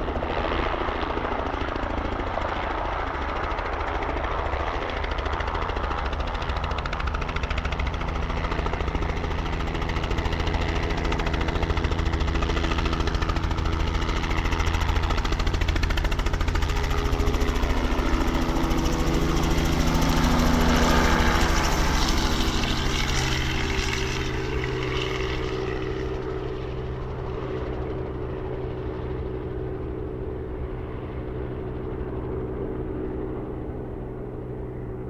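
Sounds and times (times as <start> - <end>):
helicopter rotor chop: 0.0 - 35.0.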